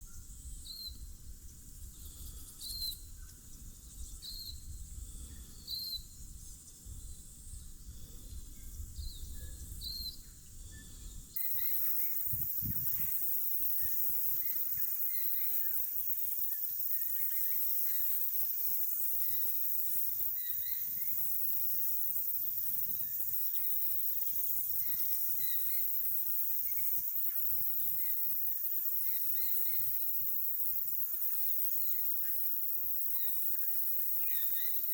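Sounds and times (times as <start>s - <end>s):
steady high hiss: 11.4s - 34.9s.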